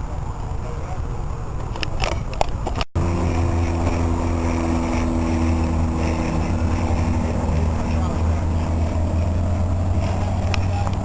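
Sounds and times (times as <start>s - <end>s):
engine humming steadily: 3.0s - 11.0s.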